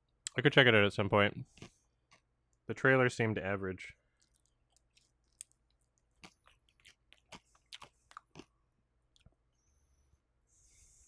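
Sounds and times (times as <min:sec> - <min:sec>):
chewing crisp dumplings: 0:01.4 - 0:02.7, 0:04.0 - 0:09.6.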